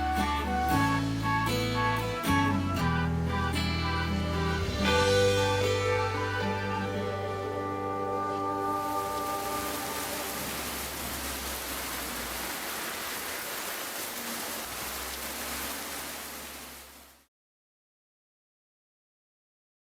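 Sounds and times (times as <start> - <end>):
steady rain: 8.2 - 17.3.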